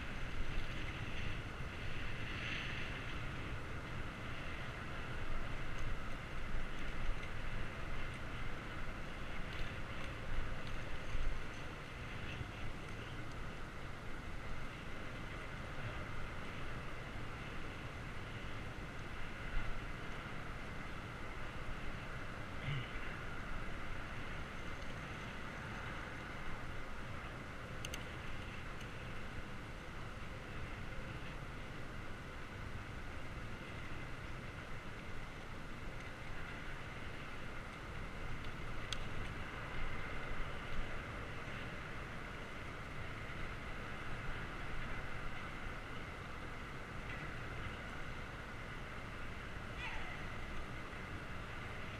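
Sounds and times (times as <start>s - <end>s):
bicycle tyre noise: 0.0s - 51.9s
faint ticks: 5.4s - 13.6s, 24.5s - 26.3s, 27.8s - 29.3s, 33.7s - 41.8s.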